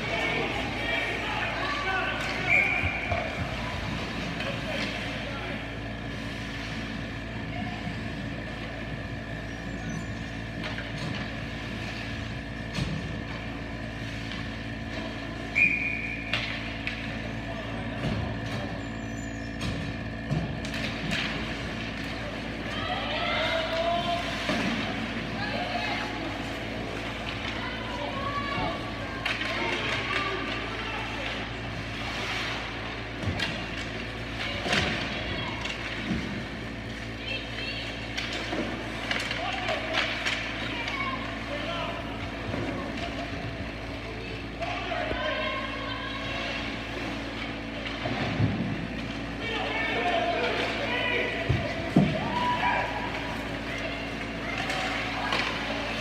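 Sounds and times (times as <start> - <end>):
steady hum: 0.0 - 56.0
hockey sticks and puck knocks: 52.9 - 56.0.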